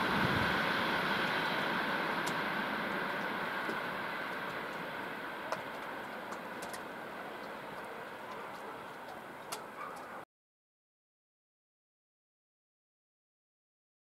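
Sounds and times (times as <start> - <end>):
train rumbling on rails: 0.0 - 10.2.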